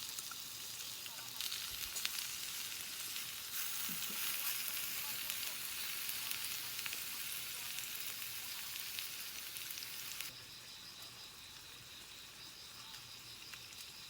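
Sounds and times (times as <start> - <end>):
food sizzling in a hot pan: 0.0 - 14.0.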